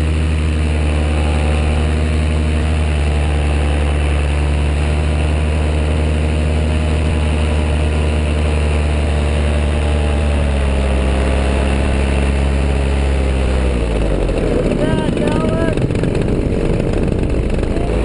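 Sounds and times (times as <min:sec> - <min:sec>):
aircraft engine and propeller: 0:00.0 - 0:18.0
wind noise: 0:13.6 - 0:18.0.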